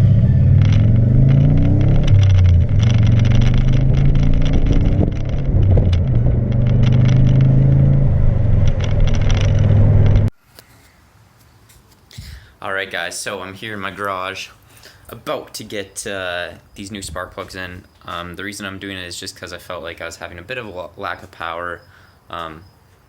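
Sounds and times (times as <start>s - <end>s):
loud straight-piped car engine: 0.0s - 10.3s.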